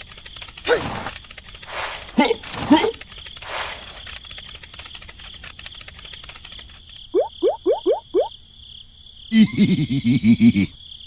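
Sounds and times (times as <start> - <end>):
cartoon rapid ticking: 0.0 - 8.3.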